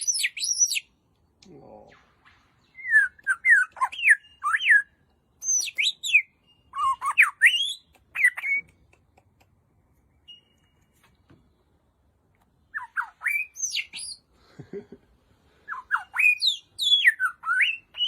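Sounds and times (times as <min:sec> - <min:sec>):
bird whistling and squawking: 0:00.0 - 0:00.9, 0:02.6 - 0:08.7, 0:12.7 - 0:14.2, 0:15.7 - 0:18.0.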